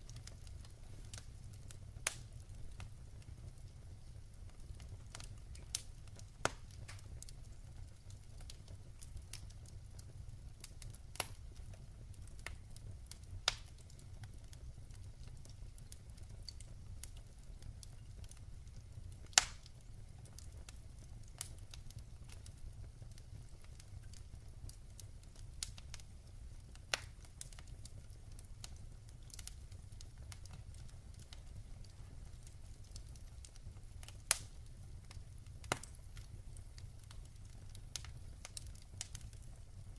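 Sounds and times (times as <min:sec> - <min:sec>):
fire crackling and popping: 0:00.0 - 0:39.9
low rumble of fire: 0:00.0 - 0:39.9.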